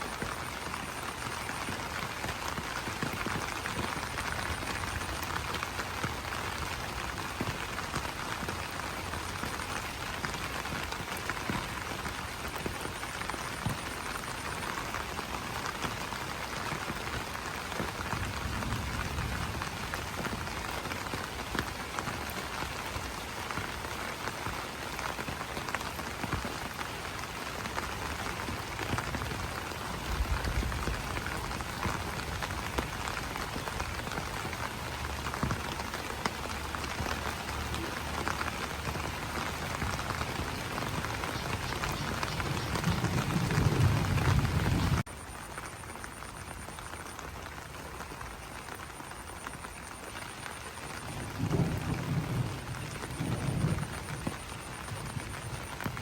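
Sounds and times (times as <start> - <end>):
rain pattering on leaves: 0.0 - 56.0.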